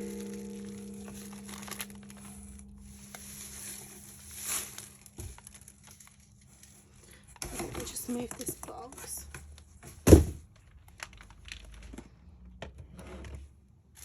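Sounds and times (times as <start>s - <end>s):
low ringing tone: 0.0s - 5.0s
plastic wrappers crinkling: 0.0s - 9.8s, 10.5s - 12.0s.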